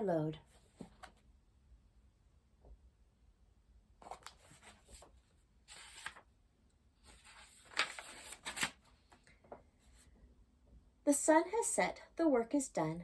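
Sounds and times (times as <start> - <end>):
paper rustling and crinkling: 4.0 - 6.3, 7.0 - 9.6.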